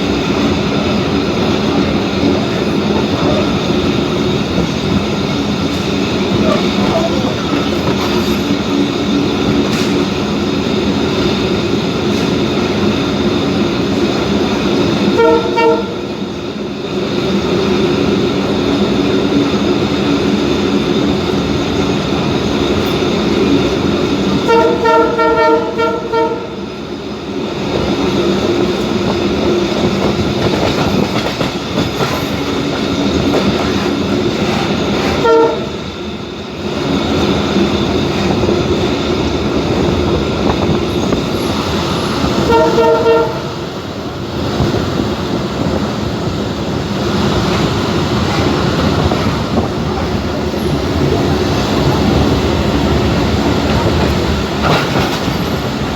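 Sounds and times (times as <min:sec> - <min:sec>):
train rumble and hum: 0:00.0 - 0:55.9
train horn blasts: 0:15.1 - 0:16.1, 0:24.4 - 0:26.6, 0:35.0 - 0:35.8, 0:42.4 - 0:43.6.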